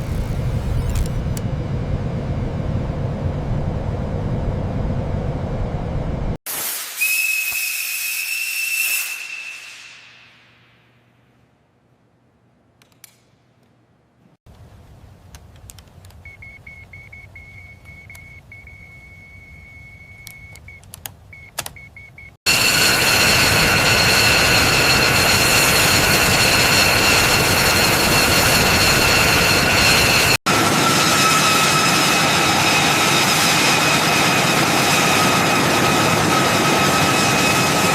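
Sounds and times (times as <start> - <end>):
jet engine running loud: 0.0 - 6.4, 22.5 - 37.9
faint steady whistle: 6.9 - 10.4, 16.2 - 20.8.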